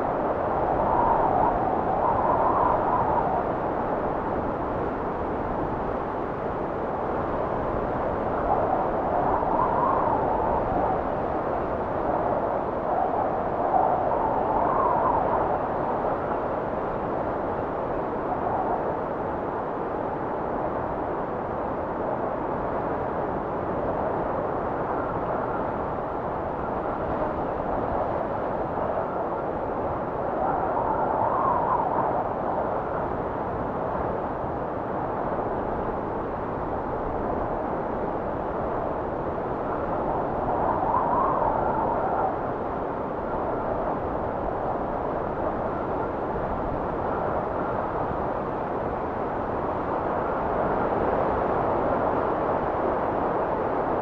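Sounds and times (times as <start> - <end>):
blizzard wind blowing: 0.0 - 54.0
whistling wind gust: 0.0 - 54.0.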